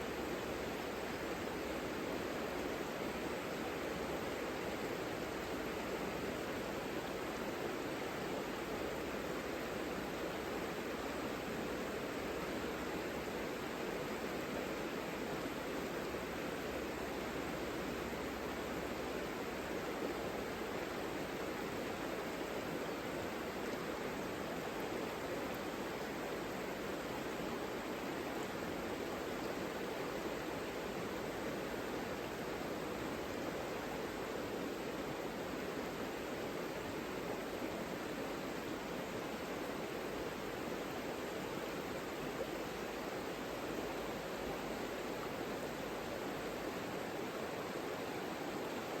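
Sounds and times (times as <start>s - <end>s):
river flowing: 17.8s - 49.0s.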